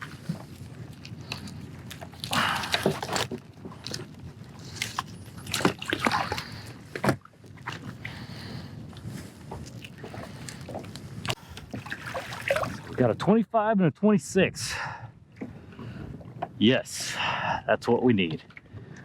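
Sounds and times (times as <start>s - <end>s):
water splashing beside kayak: 0.0s - 13.2s.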